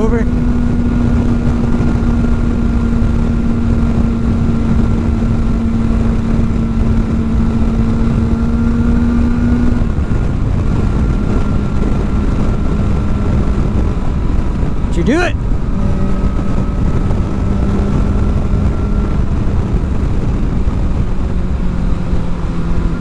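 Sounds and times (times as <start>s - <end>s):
motorcycle engine running: 0.0s - 23.0s
wind rushing over microphone: 0.0s - 23.0s.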